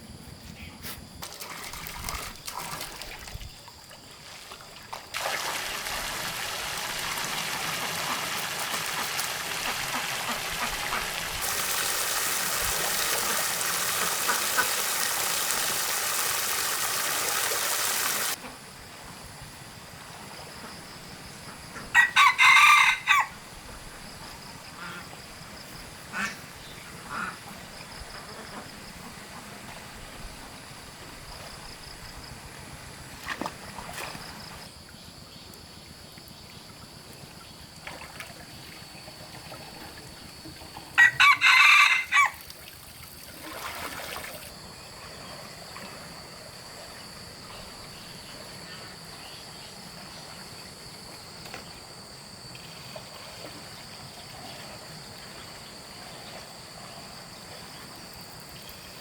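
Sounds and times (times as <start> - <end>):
steady rushing hissing noise: 9.6 - 19.8.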